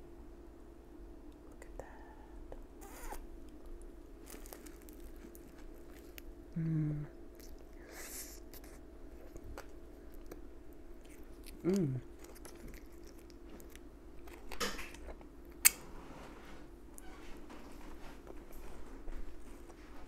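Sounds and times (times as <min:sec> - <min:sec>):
person chewing: 0:02.8 - 0:15.8
person humming: 0:06.5 - 0:07.2, 0:11.6 - 0:12.2.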